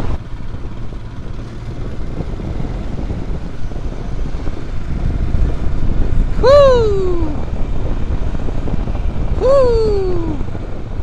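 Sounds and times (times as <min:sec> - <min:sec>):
motorcycle engine running: 0:00.0 - 0:11.0
wind rushing: 0:01.1 - 0:11.0.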